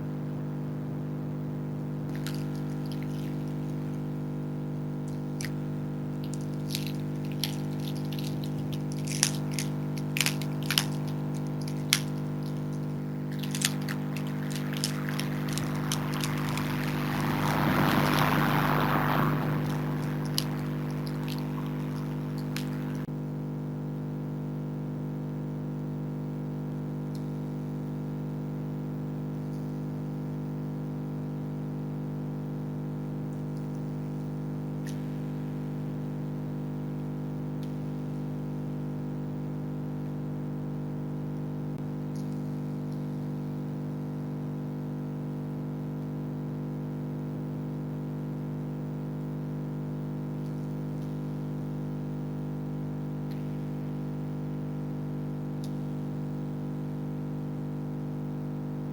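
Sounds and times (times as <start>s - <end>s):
freezer compressor humming: 2.0s - 23.1s.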